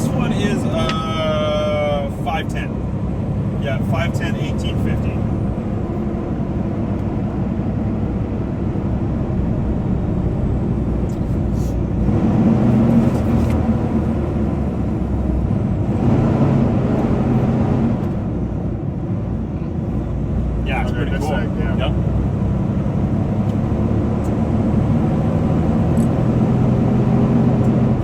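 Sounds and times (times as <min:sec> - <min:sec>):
truck diesel engine under load: 0:00.0 - 0:28.0.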